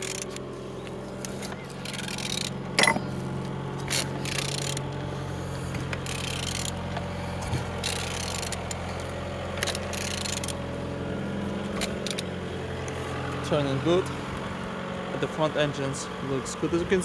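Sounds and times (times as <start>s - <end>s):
tool scraping and ratcheting: 0.0s - 10.6s, 11.7s - 12.3s
steady low hum: 0.0s - 16.8s.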